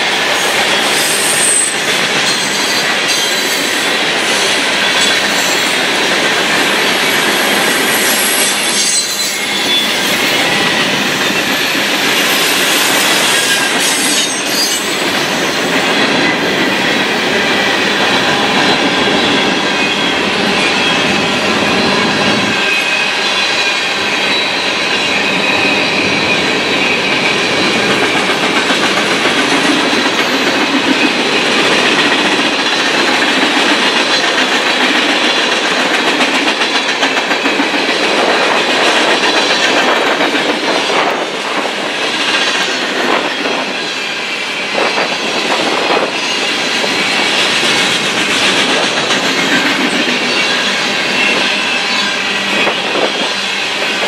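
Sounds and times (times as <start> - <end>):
thin high squealing tones: 7.9 - 10.6, 12.3 - 15.0
train wheels clattering over rail joints: 27.0 - 43.7, 44.8 - 51.6.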